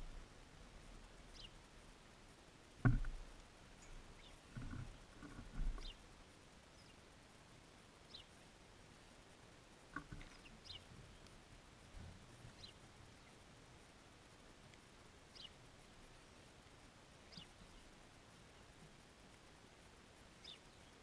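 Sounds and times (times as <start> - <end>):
soft low knocks: 2.8 - 6.0.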